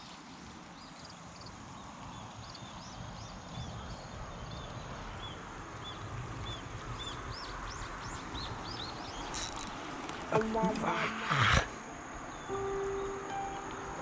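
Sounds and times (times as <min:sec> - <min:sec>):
small birds chirping: 0:00.7 - 0:14.0.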